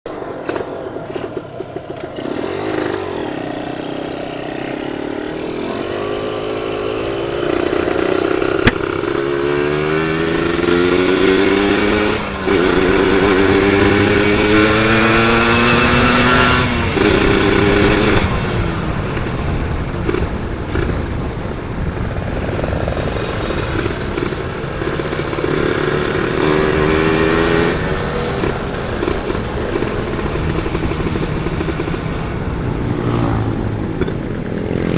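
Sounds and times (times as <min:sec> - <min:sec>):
motorcycle engine accelerating: 0:00.1 - 0:34.9
sharp click: 0:08.6 - 0:08.8.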